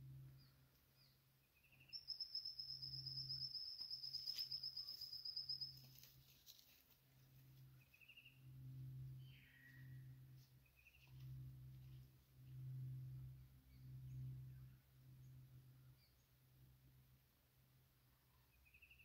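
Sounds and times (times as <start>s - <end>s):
bird chirps: 0.4s - 6.0s, 18.5s - 19.0s
rapid bird trill: 1.6s - 6.0s.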